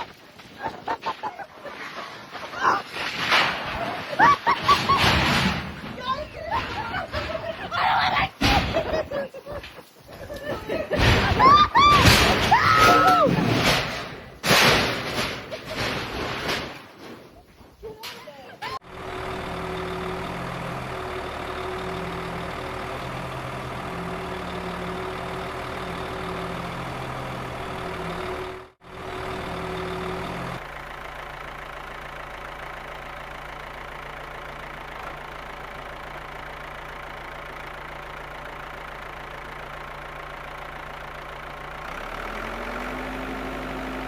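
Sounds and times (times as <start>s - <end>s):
heavy machinery engine running: 18.8s - 44.0s.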